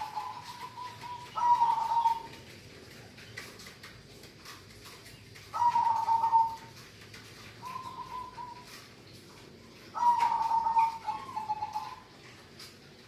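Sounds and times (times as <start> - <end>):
dove cooing: 0.0 - 2.4, 5.4 - 8.9, 9.7 - 12.3.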